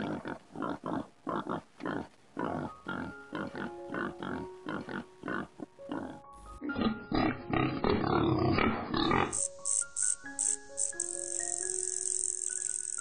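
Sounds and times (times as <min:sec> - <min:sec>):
pigs grunting: 0:00.0 - 0:09.5
background music with held notes: 0:02.4 - 0:13.0.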